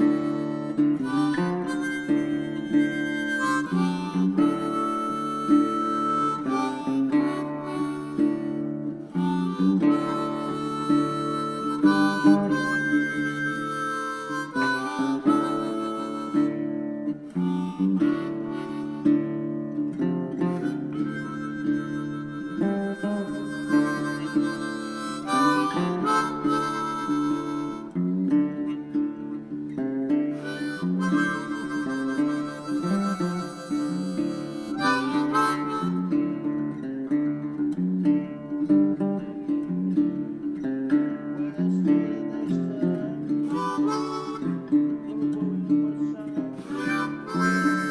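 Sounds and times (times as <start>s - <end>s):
acoustic guitar: 0.0s - 47.9s
blues harmonica: 0.0s - 47.9s.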